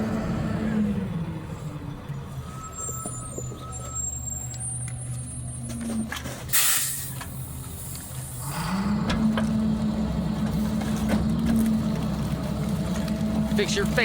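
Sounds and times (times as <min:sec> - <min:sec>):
diesel truck engine running: 0:00.0 - 0:14.0
air brake hiss: 0:06.5 - 0:07.2.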